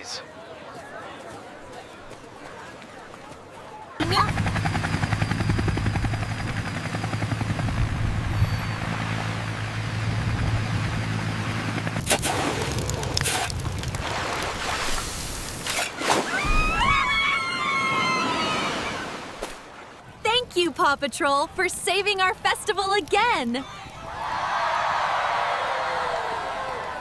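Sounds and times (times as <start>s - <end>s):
helicopter rotors droning: 4.0s - 14.0s.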